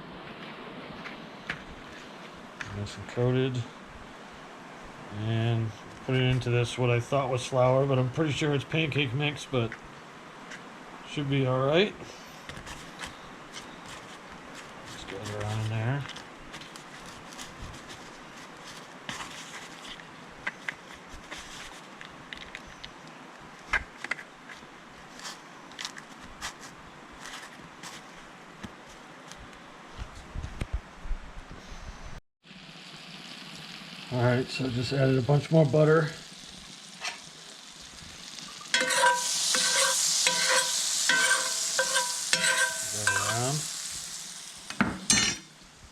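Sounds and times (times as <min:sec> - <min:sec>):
steady faint hiss: 0:00.0 - 0:45.9
fish turned in dry coating: 0:12.6 - 0:23.0, 0:39.1 - 0:44.6
butter sizzling in a frying pan: 0:32.5 - 0:45.9
metal utensil scraping a pan: 0:37.0 - 0:37.3, 0:38.6 - 0:44.0, 0:44.8 - 0:45.5.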